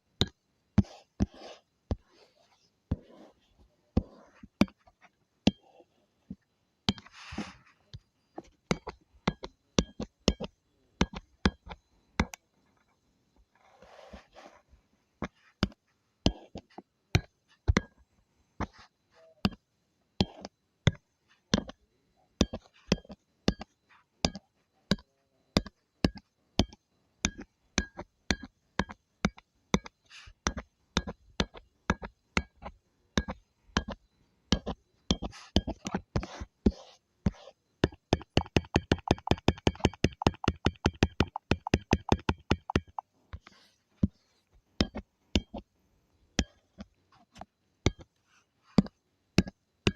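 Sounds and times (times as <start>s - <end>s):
drawing tool tapping: 0.2s - 2.1s, 2.9s - 3.3s, 4.0s - 4.9s, 5.5s - 8.0s, 8.7s - 12.4s, 15.2s - 16.6s, 20.2s - 21.8s, 22.4s - 25.0s, 25.6s - 44.2s, 44.8s - 45.6s.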